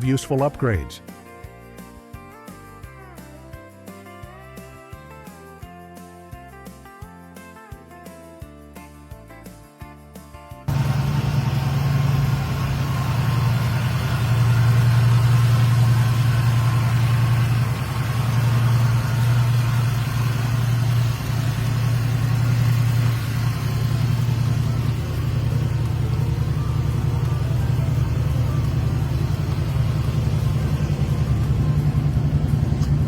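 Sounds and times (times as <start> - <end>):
car engine idling: 10.7 - 33.0.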